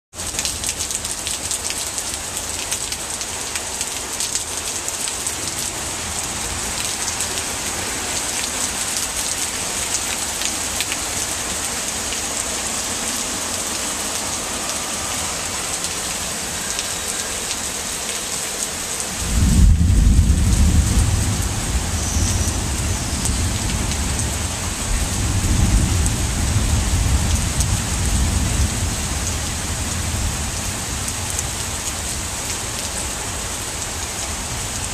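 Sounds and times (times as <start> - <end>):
heavy rain falling: 0.1 - 34.9
loud deep rumble: 19.2 - 28.6.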